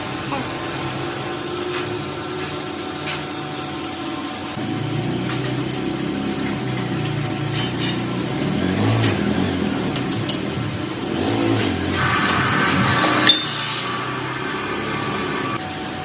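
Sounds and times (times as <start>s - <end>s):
engine humming: 4.5s - 15.6s.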